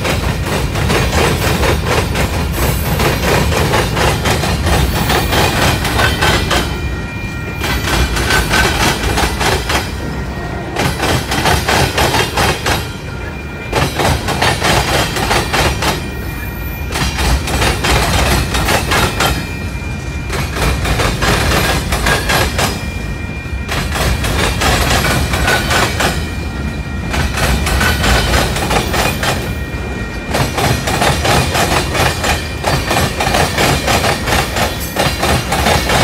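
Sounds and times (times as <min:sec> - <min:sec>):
train wheels clattering over rails: 0:00.0 - 0:16.2, 0:16.8 - 0:23.0, 0:23.6 - 0:26.4, 0:27.0 - 0:36.0
thin steady squeal: 0:16.0 - 0:17.0.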